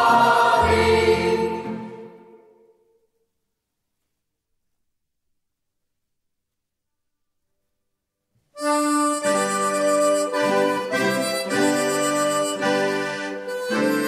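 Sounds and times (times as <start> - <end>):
accordion playing a tune: 8.6 - 14.0.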